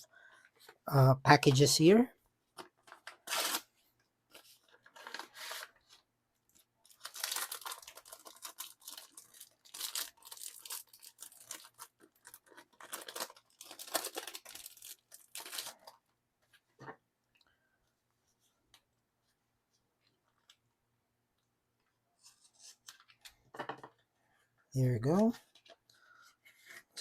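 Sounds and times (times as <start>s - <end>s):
packaging tearing and crinkling: 3.1s - 3.7s, 6.9s - 16.0s.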